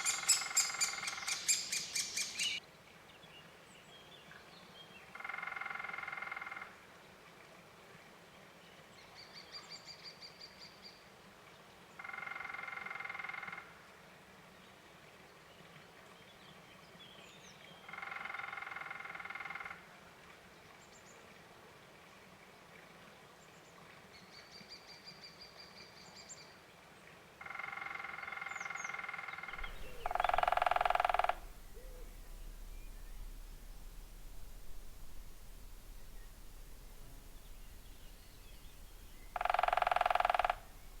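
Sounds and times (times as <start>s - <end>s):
faint high bird chirps: 0.0s - 2.6s, 29.6s - 41.0s
woodpecker drumming on wood: 29.2s - 41.0s.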